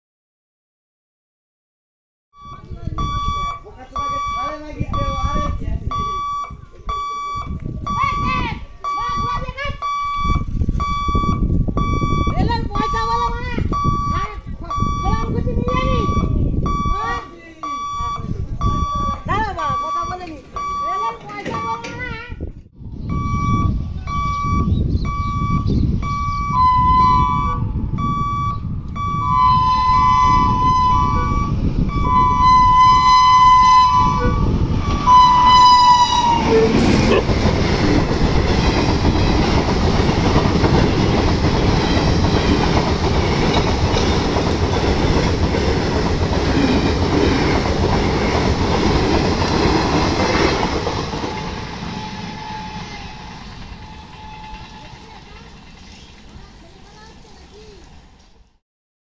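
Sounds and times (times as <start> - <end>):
level crossing buzzer beeping: 2.4 - 5.3, 5.9 - 13.2, 13.8 - 21.9, 23.1 - 36.4
train passing at speed: 23.1 - 58.4
locomotive horn blasts: 26.2 - 37.1, 51.3 - 55.2.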